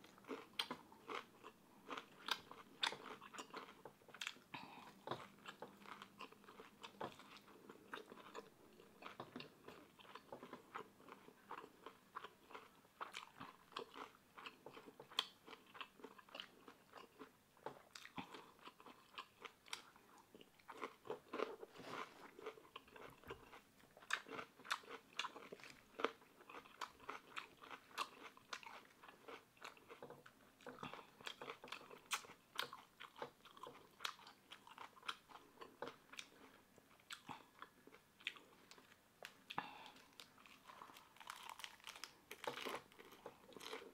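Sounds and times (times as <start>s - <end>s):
person chewing crunchy food: 0.0s - 43.9s.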